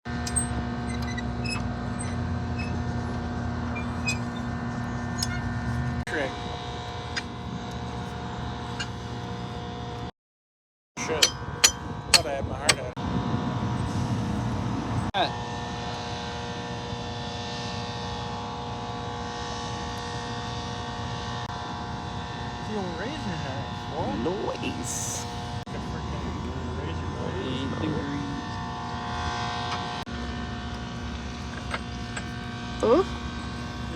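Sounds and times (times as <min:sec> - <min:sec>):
drill rig engine running: 0:00.1 - 0:10.1, 0:11.0 - 0:13.0, 0:30.1 - 0:33.9
drilling rig engine drone: 0:00.1 - 0:10.1, 0:11.0 - 0:33.9.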